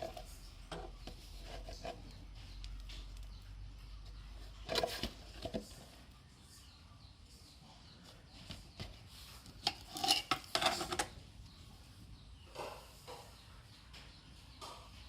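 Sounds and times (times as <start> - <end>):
small hard objects being handled: 8.8 - 11.2.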